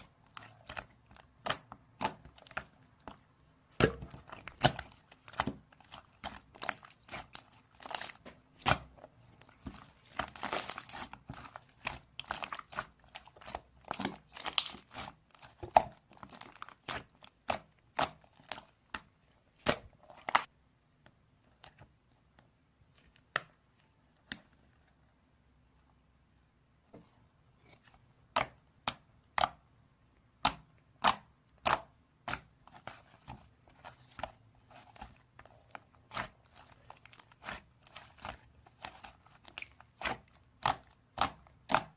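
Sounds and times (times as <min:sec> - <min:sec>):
slime popping and crackling: 0:00.3 - 0:19.0.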